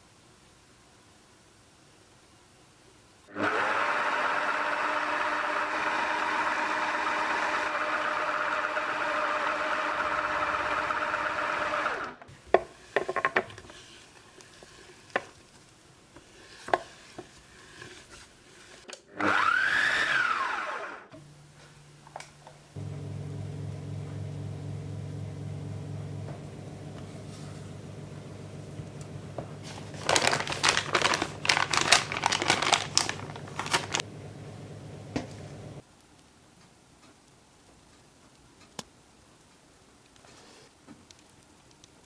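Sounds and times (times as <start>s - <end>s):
food processor motor running: 3.3s - 12.2s, 19.2s - 21.0s, 22.8s - 25.0s, 27.9s - 34.1s.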